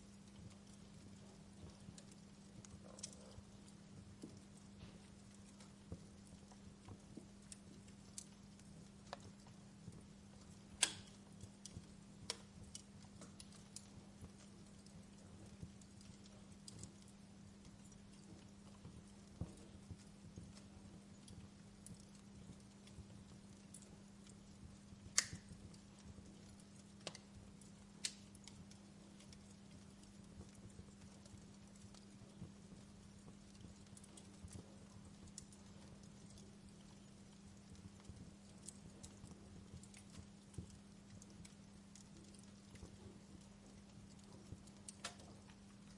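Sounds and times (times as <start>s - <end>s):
steady low hum: 0.0s - 45.9s
wood fire crackling: 0.0s - 45.9s
sharp pop from fire: 10.8s - 11.1s.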